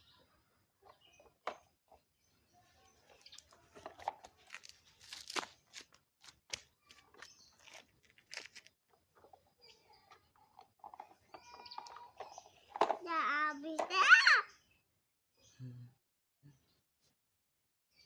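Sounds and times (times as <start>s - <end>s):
soil scraped with toy vehicles: 0.9s - 13.1s.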